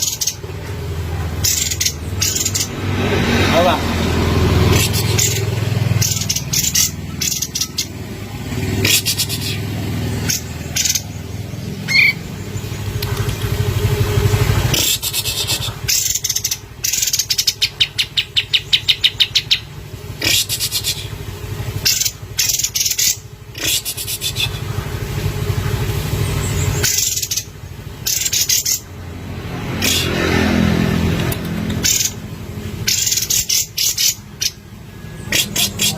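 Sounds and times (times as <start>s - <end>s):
bird rattling trill: 1.4s - 2.8s, 4.6s - 8.0s, 8.7s - 11.3s, 21.8s - 24.6s, 25.9s - 28.9s, 32.8s - 34.7s
bulbul singing high phrases: 1.4s - 13.0s.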